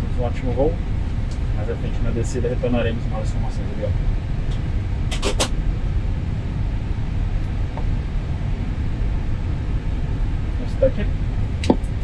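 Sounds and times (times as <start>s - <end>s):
aircraft cockpit rumble: 0.0s - 12.0s.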